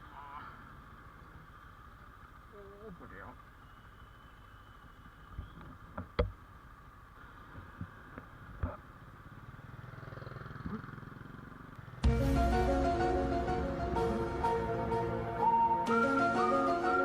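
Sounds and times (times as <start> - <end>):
motorcycle engine running: 8.2 - 15.0
music: 12.0 - 17.0.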